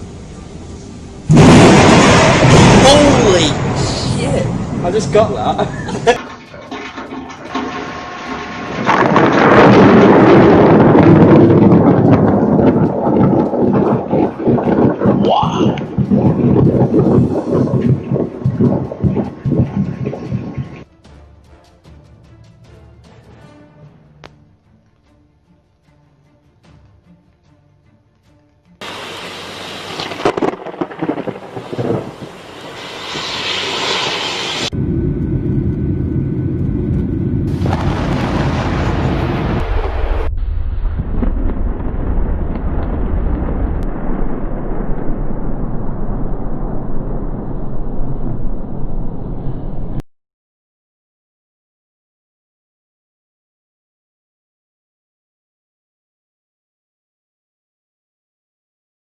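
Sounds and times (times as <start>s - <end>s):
thunder crack and rumble: 1.3s - 20.9s, 28.8s - 50.0s.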